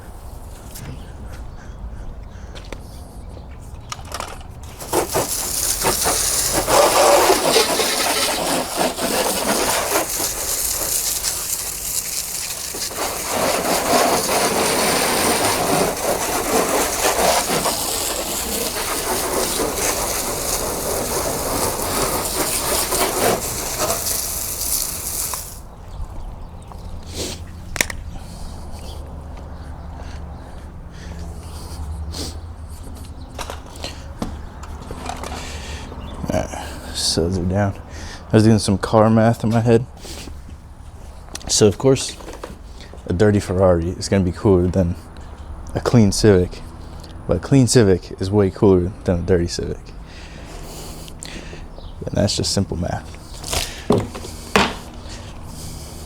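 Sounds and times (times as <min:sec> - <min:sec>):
water spraying onto car: 0:04.7 - 0:25.7, 0:50.4 - 0:56.0.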